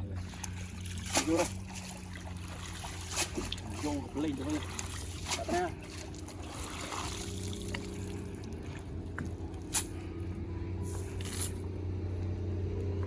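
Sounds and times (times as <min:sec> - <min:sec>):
water dripping and splashing: 0:00.0 - 0:09.8
low engine hum: 0:00.0 - 0:13.0
sharp splash: 0:00.2 - 0:08.5.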